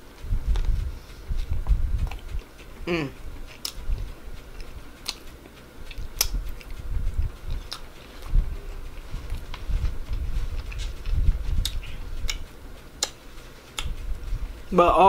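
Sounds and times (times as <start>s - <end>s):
person chewing noodles: 0.5s - 14.0s
wet mouth clicks: 3.5s - 4.0s, 11.6s - 12.4s.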